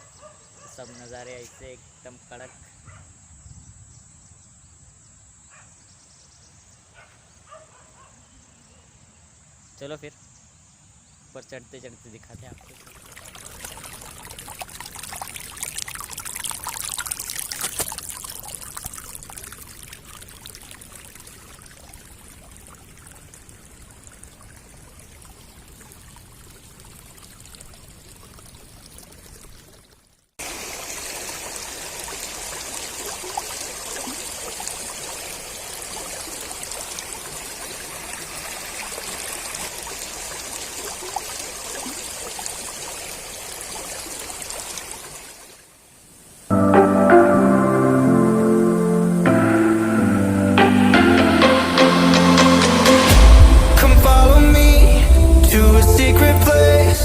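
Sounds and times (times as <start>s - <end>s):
water rushing: 12.4s - 45.7s, 48.0s - 57.0s.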